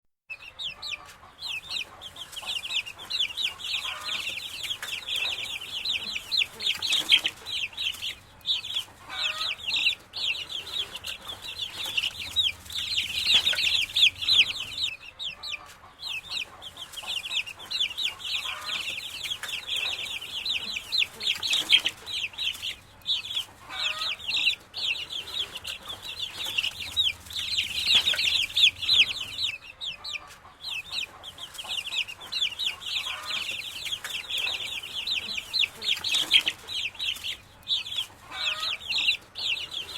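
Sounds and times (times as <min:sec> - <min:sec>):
chicks peeping: 0:00.3 - 0:39.9.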